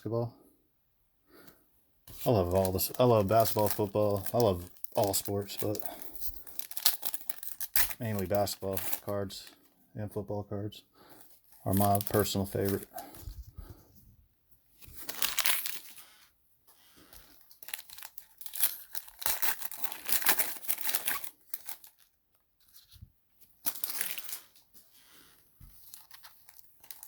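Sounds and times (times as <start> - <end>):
plastic wrappers crinkling and tearing: 2.1 - 9.8, 11.2 - 13.4, 14.8 - 16.3, 17.0 - 27.0.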